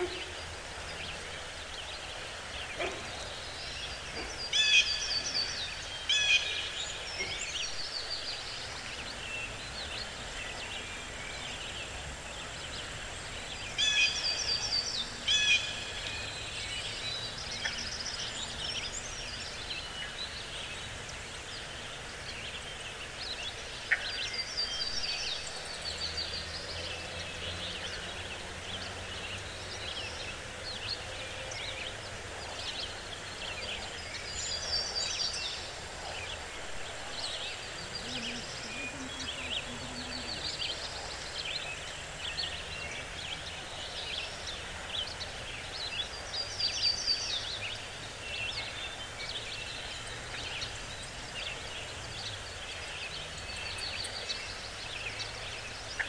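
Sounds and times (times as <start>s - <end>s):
songbirds singing: 0.0s - 56.0s
steady background hiss: 0.0s - 56.0s.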